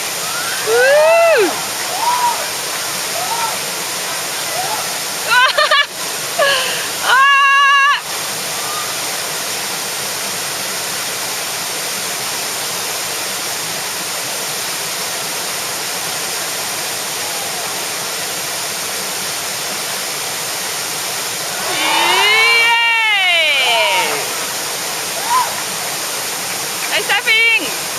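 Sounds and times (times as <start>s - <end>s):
whitewater rushing: 0.0s - 27.9s
person shouting: 21.5s - 24.4s
person yelling: 21.5s - 24.4s.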